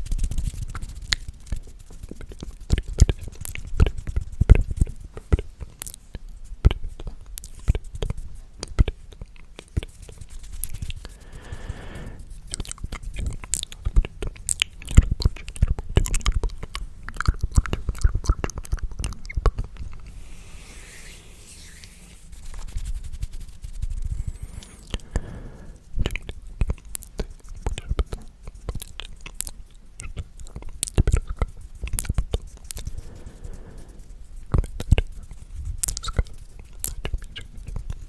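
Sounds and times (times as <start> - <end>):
breathy rush: 11.0 - 12.3, 24.0 - 25.8, 32.8 - 34.2.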